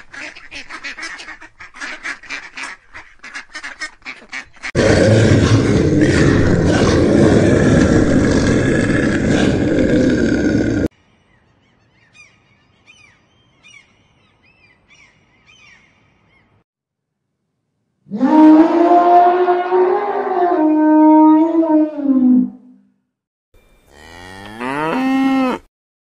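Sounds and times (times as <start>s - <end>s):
rough animal roar: 4.8s - 10.9s.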